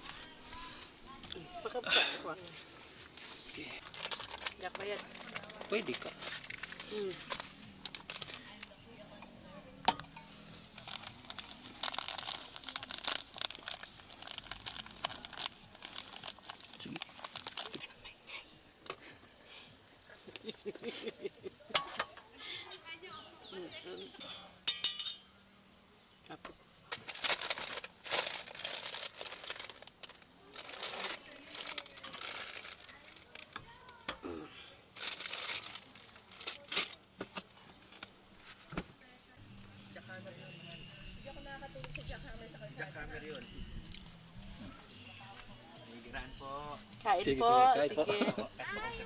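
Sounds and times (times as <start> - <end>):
crinkly material crumpling: 0.0 - 1.8, 2.4 - 8.8, 10.6 - 18.1, 26.9 - 34.0, 35.0 - 39.4.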